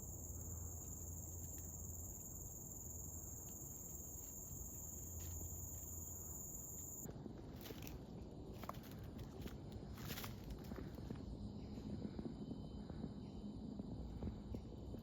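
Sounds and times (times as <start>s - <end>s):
insects high-pitched buzz: 0.0s - 7.1s.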